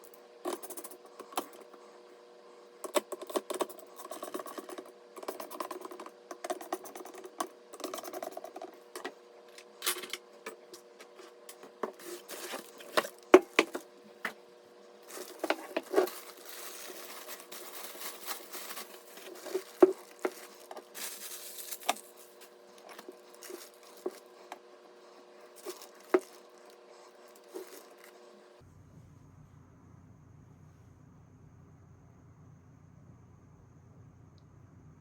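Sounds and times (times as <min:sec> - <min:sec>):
faint steady hum: 0:00.0 - 0:35.0
packaging rustling and crinkling: 0:11.8 - 0:14.4, 0:15.0 - 0:24.4, 0:25.6 - 0:28.3.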